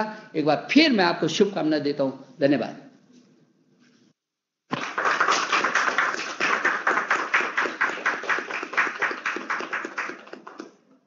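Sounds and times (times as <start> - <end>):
people applauding: 4.7 - 10.8.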